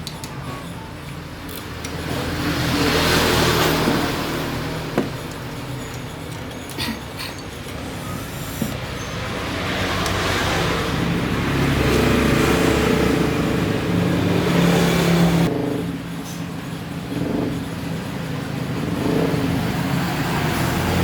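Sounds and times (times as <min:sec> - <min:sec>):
vehicle engine revving: 0:07.7 - 0:21.0.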